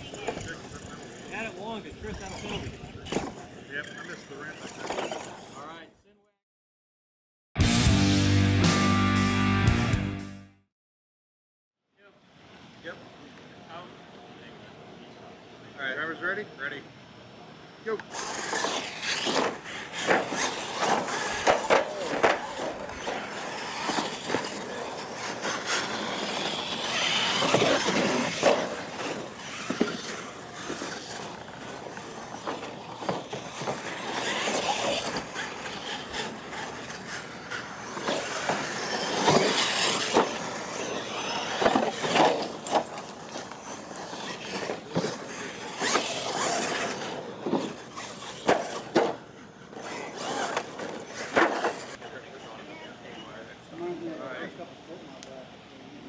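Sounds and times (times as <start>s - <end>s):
toy truck motors revving: 0.0s - 5.8s, 17.9s - 52.0s
tyres scrabbling on gravel: 18.1s - 52.0s.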